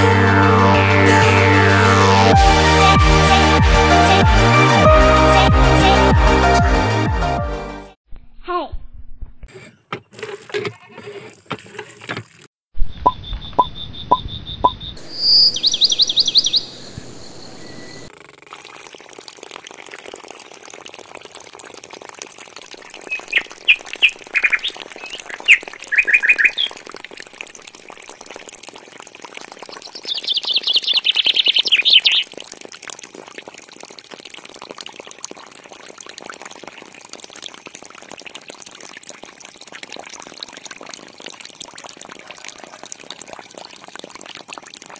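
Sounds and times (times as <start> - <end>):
small birds chirping: 12.9 - 18.1, 23.1 - 26.8, 29.7 - 32.3.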